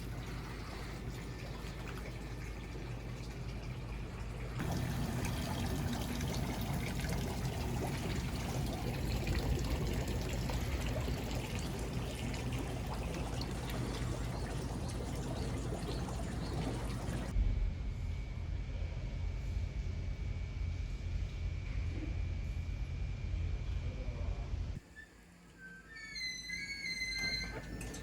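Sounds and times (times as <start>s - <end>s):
water pouring into a bath: 0.0s - 17.3s.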